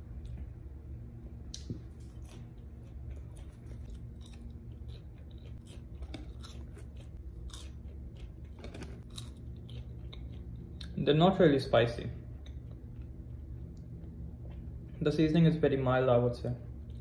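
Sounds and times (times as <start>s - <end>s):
person crunching fries: 1.6s - 11.0s.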